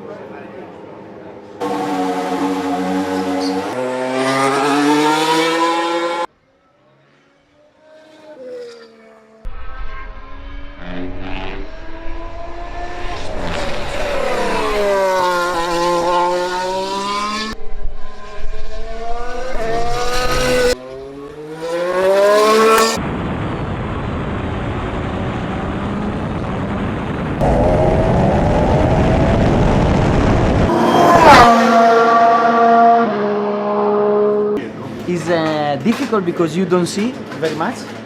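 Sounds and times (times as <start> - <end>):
race car engine revving: 1.6 - 6.3, 9.4 - 23.0, 27.4 - 34.6
steady rushing noise: 23.0 - 32.1.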